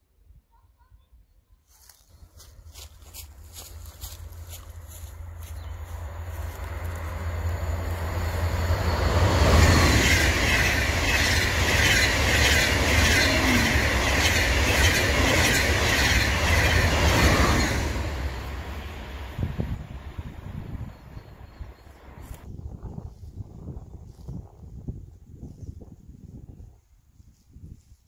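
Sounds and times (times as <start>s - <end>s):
high-speed train rushing past: 3.6s - 22.3s
train wheels clattering: 8.9s - 18.6s.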